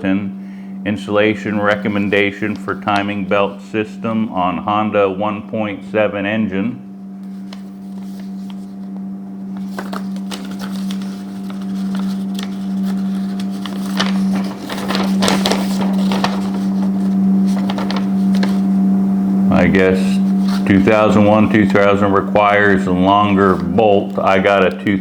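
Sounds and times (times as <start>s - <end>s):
steady low hum: 0.0s - 25.0s
paper crinkling and rustling: 1.6s - 3.4s, 7.2s - 18.8s, 20.1s - 25.0s.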